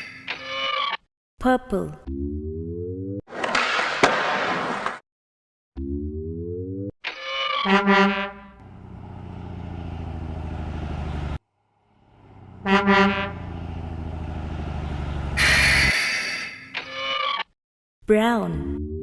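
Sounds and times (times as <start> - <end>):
truck horn honk: 7.6 - 9.2, 12.2 - 14.1, 14.8 - 16.0
truck engine running: 8.5 - 15.9.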